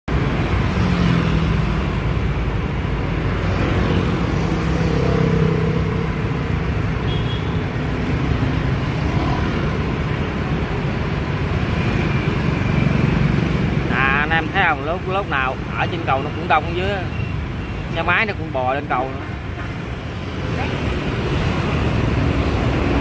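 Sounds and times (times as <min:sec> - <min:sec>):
road traffic rumble: 0:00.0 - 0:23.0
passing engine hums: 0:00.1 - 0:07.0.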